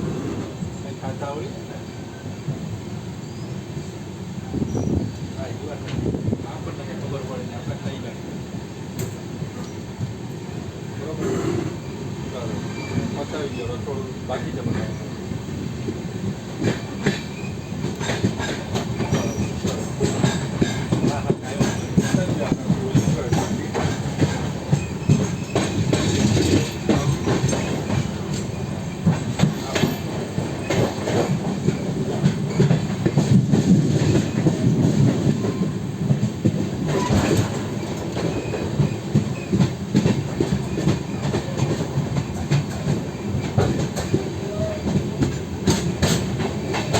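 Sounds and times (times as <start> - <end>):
train low rumble: 0.0 - 46.9
train wheels clattering over rail joints: 16.4 - 46.9.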